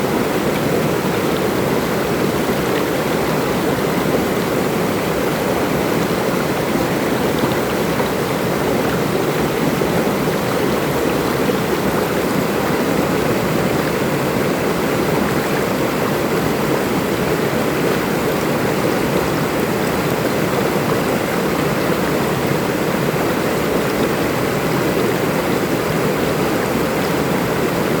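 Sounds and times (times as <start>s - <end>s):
water babbling: 0.0s - 28.0s.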